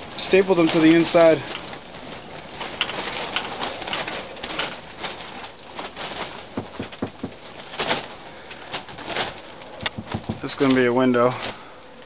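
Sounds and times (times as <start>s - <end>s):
tarp flapping in wind: 0.0s - 12.0s
dull thumps: 6.2s - 8.1s, 9.8s - 10.7s.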